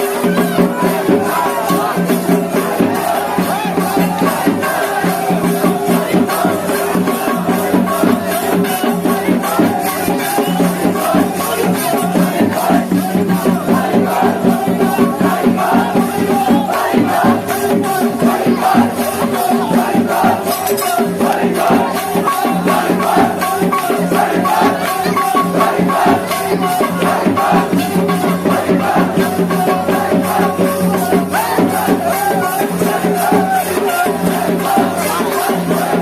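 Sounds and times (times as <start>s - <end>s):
shaken and struck percussion: 0.0s - 36.0s.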